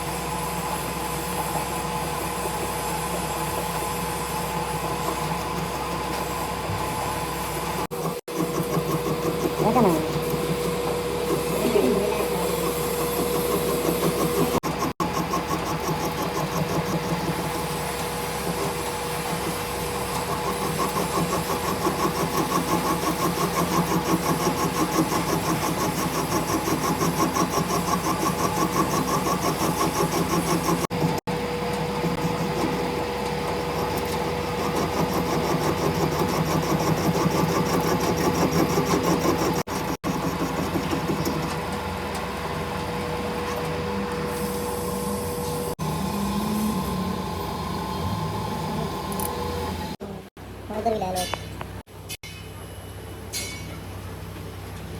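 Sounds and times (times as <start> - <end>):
machine humming and pulsing: 0.0 - 50.7.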